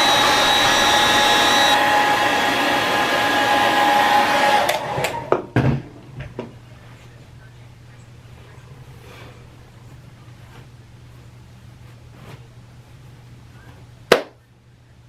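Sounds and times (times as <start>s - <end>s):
hair dryer blowing: 0.0s - 5.6s.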